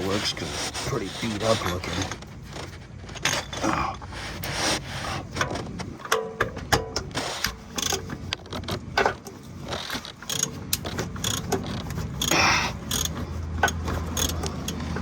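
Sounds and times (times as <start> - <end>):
metal scraping rasp: 0.0 - 2.5, 3.4 - 5.4
oil filter wrench clicking metallically: 10.2 - 15.0.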